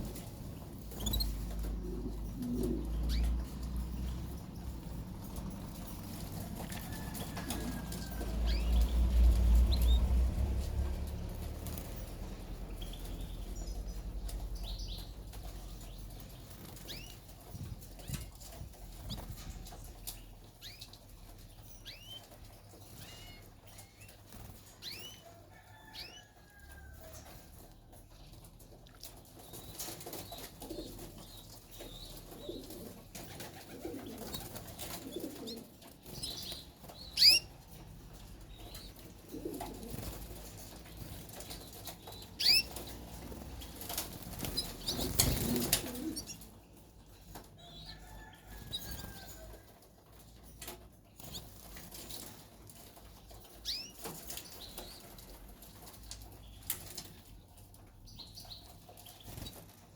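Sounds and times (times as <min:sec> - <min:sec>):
canaries chirping: 0:00.0 - 0:59.9
wings flapping: 0:05.1 - 0:13.2, 0:31.8 - 0:37.4, 0:38.1 - 0:46.6.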